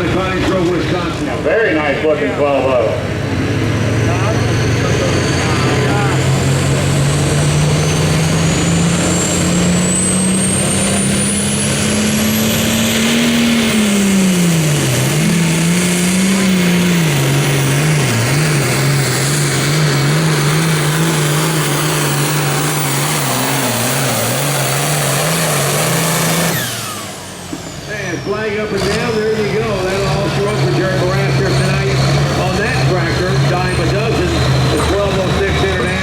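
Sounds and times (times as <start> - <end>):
diesel tractor engine running: 0.0 - 36.0.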